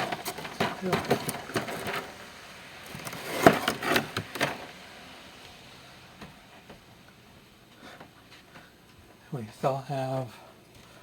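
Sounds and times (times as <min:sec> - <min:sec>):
boxes knocking and tapping: 0:00.0 - 0:02.1.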